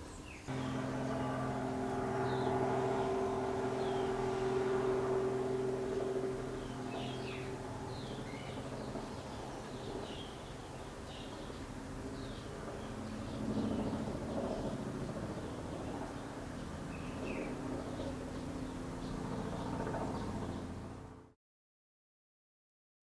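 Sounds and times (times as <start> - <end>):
birds chirping: 0.0 - 21.0
low mechanical hum: 0.3 - 12.2.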